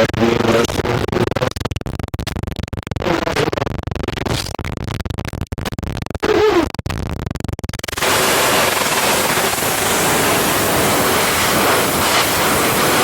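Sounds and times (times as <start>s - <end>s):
crackling static noise: 0.0s - 13.0s
warbling tones: 7.8s - 13.0s.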